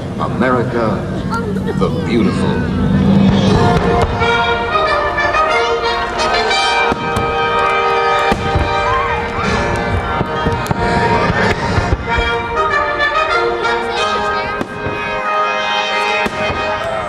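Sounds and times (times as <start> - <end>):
music in sustained chords: 0.0 - 17.0
fireworks bangs: 3.0 - 17.0.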